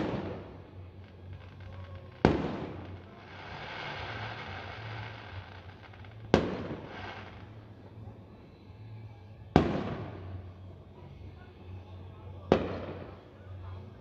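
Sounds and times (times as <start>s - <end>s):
fireworks hiss: 0.0s - 7.8s
fireworks bursting: 0.0s - 8.3s, 9.5s - 10.6s, 12.5s - 13.4s.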